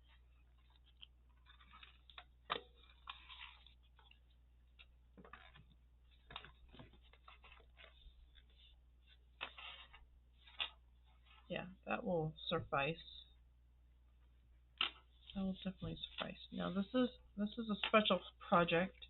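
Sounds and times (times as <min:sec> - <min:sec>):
paper and leather rustling: 0:00.0 - 0:11.5.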